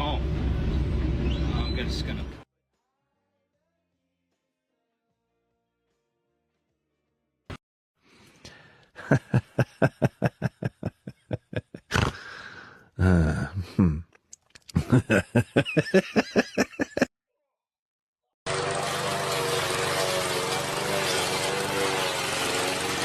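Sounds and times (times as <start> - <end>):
person laughing hard: 9.0 - 14.0, 14.7 - 17.1.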